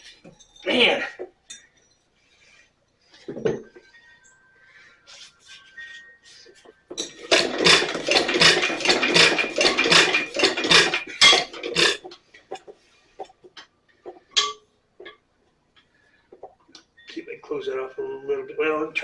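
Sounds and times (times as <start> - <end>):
engine cranked by hand chuffing: 7.1 - 12.1.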